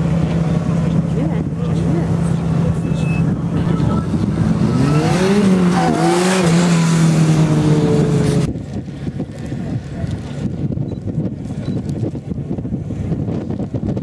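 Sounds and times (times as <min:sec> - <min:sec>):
wind noise on microphone: 0:00.8 - 0:14.0
car engine revving hard: 0:04.1 - 0:08.5.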